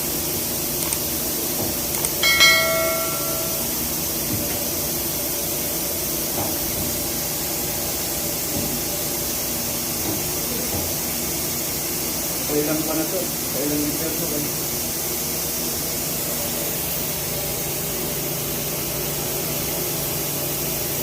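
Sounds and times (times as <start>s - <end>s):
metal part clinking: 2.0s - 3.7s.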